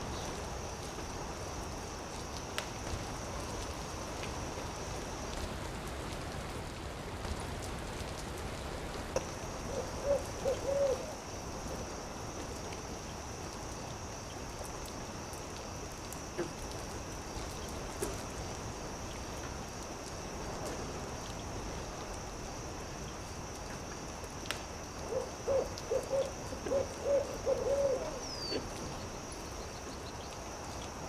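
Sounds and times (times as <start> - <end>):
campfire crackling: 0.0 - 31.0
owl hoots: 9.7 - 11.2, 25.0 - 28.7.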